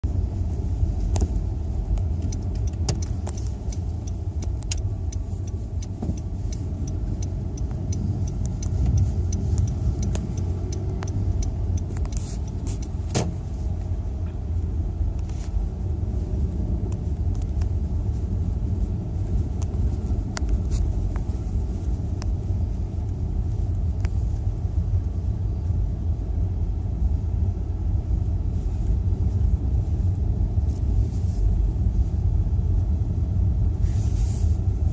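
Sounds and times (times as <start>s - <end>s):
car road and engine rumble: 0.0s - 34.9s
sharp ticks and taps: 1.2s - 13.0s.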